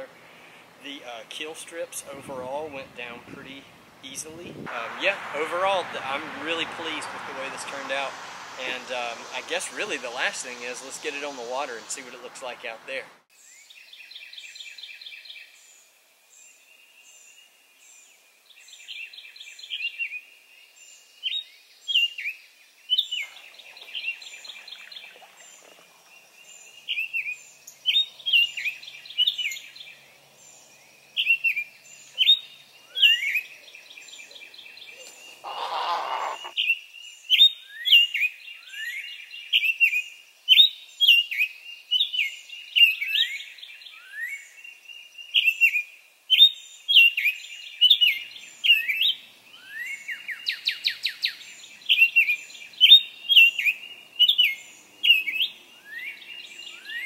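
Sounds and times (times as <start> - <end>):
songbirds chirping and trilling: 0.0 - 57.0
brief rushing noise: 4.6 - 12.0.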